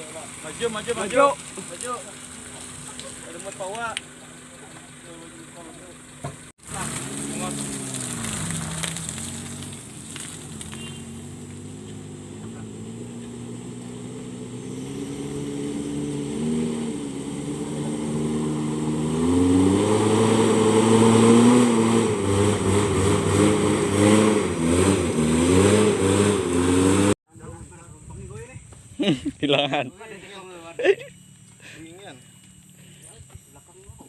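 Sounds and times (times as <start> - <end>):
vehicle engine revving: 0.0 - 27.2.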